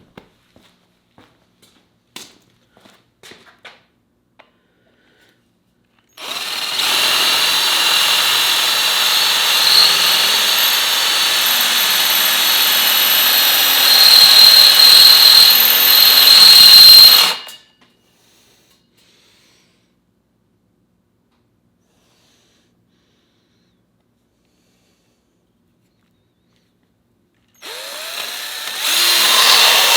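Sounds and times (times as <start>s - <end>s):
cordless drill boring into metal: 6.2s - 17.6s, 27.6s - 29.9s.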